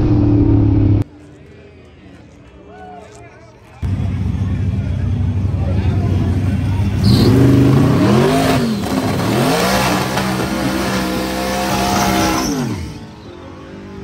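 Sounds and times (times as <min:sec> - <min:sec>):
drag racing engine accelerating: 0:06.0 - 0:13.9.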